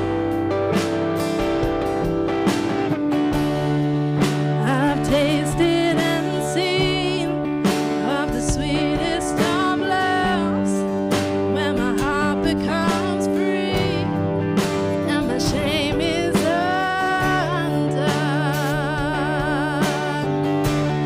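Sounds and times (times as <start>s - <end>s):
worship band guitar: 0.0s - 21.0s.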